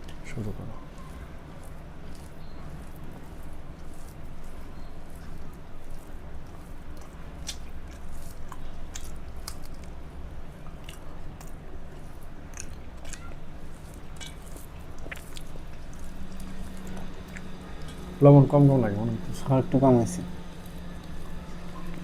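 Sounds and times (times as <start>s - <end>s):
person chewing food: 0.0s - 22.0s
steady low hum: 0.0s - 22.0s
wet mouth clicks: 7.0s - 10.0s, 14.2s - 17.9s.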